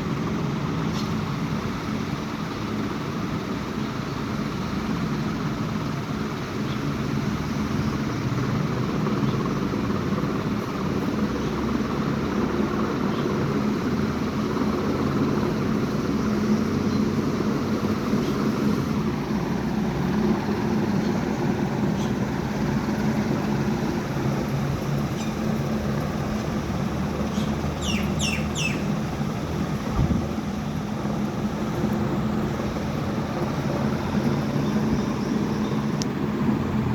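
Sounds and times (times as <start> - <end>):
bird chirping: 21.9 - 22.2, 25.1 - 25.4, 27.2 - 29.1.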